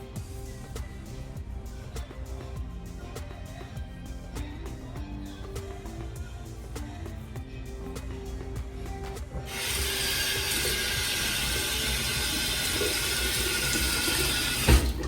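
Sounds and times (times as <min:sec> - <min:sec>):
faucet running: 0:09.5 - 0:15.0
faucet shutting off thump: 0:09.5 - 0:15.0.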